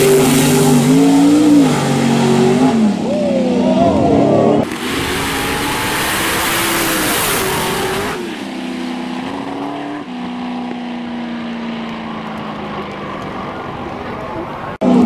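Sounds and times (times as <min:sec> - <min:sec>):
drag racing car engines: 0:00.0 - 0:15.0.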